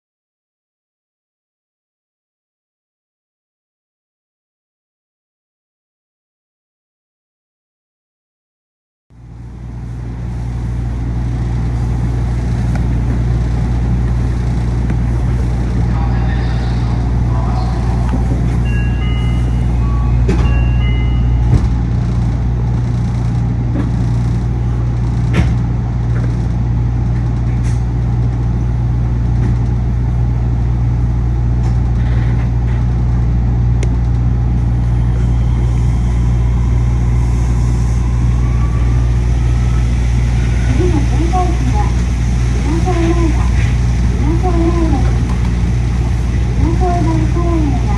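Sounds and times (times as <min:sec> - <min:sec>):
electronic chime: 0:18.4 - 0:21.9
air conditioning hum: 0:38.1 - 0:47.9.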